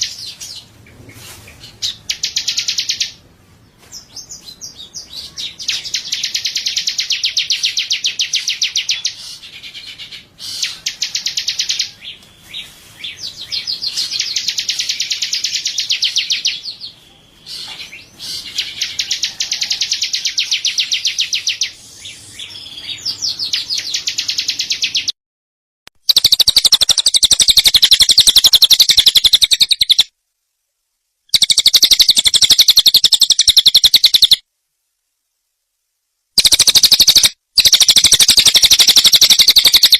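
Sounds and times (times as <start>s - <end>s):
songbird trilling: 26.1s - 30.1s, 31.3s - 34.4s, 36.4s - 39.9s.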